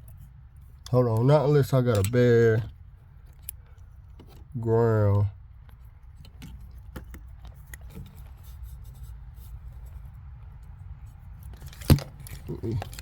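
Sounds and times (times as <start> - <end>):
light handling clicks and rubbing: 0.0 - 4.7, 5.5 - 13.0.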